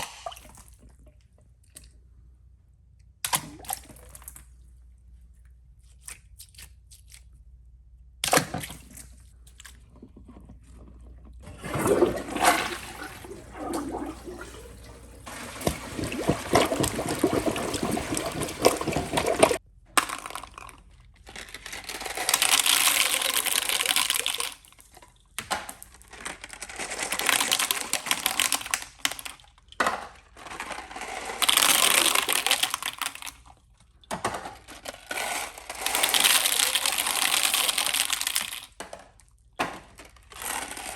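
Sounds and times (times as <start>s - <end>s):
toilet flushing: 11.4s - 19.6s.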